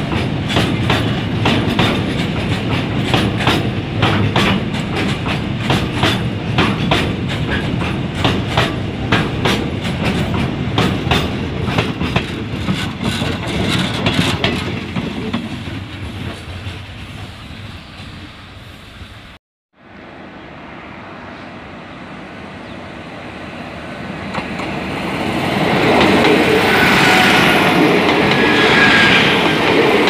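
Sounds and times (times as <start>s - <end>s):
wheels clacking over rail joints: 0.0s - 17.3s
freight train rumbling past: 0.0s - 30.0s.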